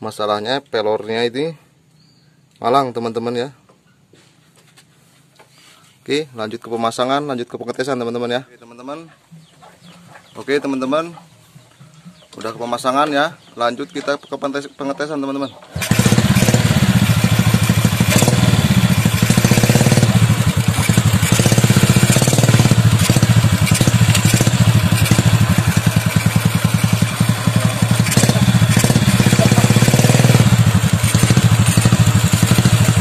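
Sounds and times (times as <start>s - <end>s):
motorcycle engine running: 15.7s - 33.0s.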